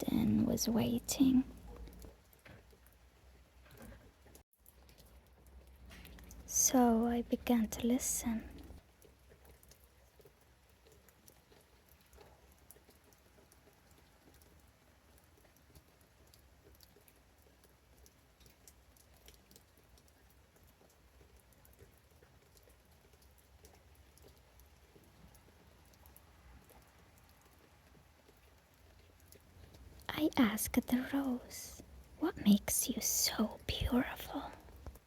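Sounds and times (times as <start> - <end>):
low steady rumble: 0.0 - 2.0
light rain drops ticking: 0.0 - 35.0.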